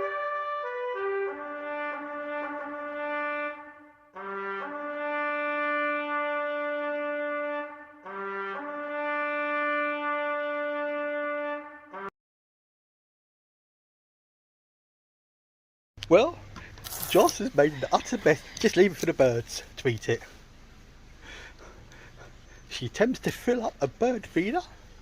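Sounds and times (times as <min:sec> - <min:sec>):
solo brass instrument call: 0:00.0 - 0:12.1.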